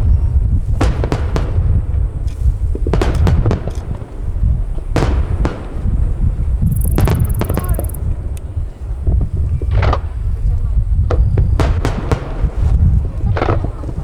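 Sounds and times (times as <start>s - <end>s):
low rumble of booms: 0.0s - 14.0s
fireworks cracking: 0.6s - 10.3s.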